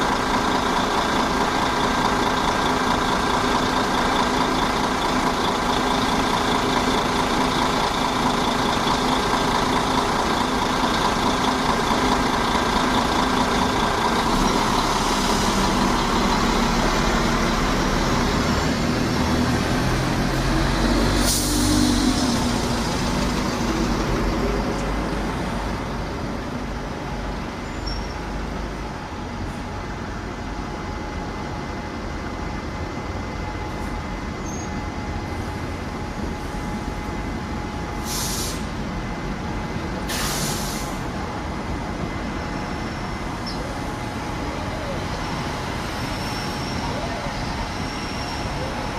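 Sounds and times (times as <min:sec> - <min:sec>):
diesel bus engine running: 0:00.0 - 0:48.9
air brakes hissing: 0:21.0 - 0:22.0, 0:38.0 - 0:38.8, 0:40.0 - 0:41.2.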